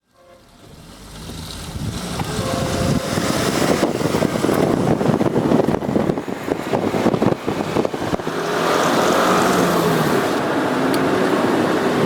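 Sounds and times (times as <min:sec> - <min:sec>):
rushing vehicle noise: 0:00.0 - 0:12.0
wind buffeting microphone: 0:01.3 - 0:10.2.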